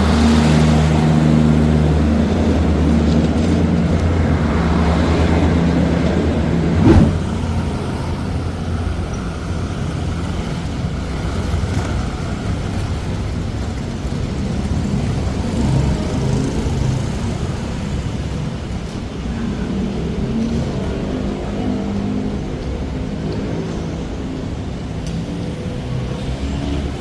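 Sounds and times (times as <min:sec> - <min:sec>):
vehicle engine rumble: 0:00.0 - 0:09.2
passing traffic: 0:00.0 - 0:27.0
sharp knock: 0:06.7 - 0:07.4.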